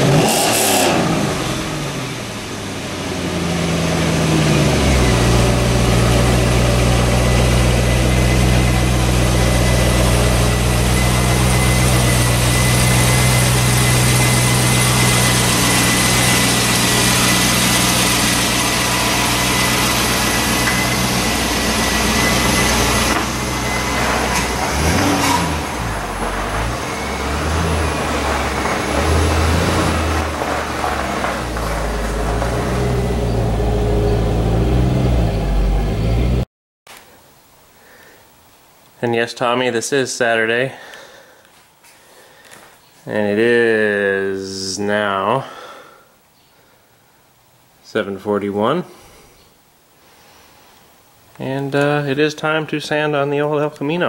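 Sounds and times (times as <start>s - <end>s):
car engine running: 0.0s - 36.4s.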